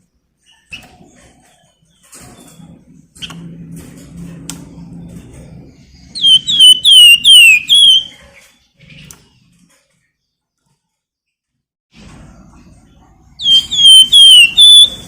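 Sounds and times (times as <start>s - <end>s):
songbird whistling downward notes: 6.2s - 8.1s, 13.4s - 15.0s.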